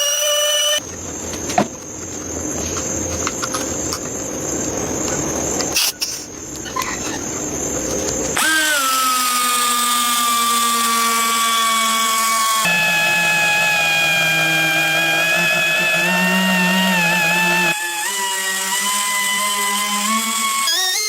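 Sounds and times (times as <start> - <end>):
motor whine: 0.0 - 0.8, 6.8 - 21.0
power tool rasping: 0.0 - 0.8, 8.4 - 21.0.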